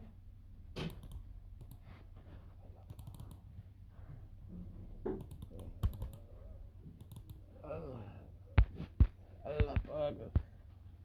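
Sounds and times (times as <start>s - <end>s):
computer mouse clicks: 0.8s - 2.0s, 2.8s - 3.5s, 5.1s - 6.3s, 7.0s - 7.4s.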